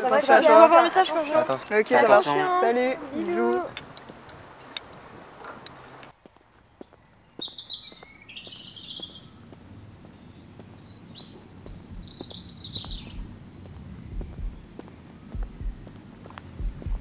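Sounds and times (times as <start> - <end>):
low outdoor background: 0.0 - 17.0
songbird warbling: 6.7 - 17.0.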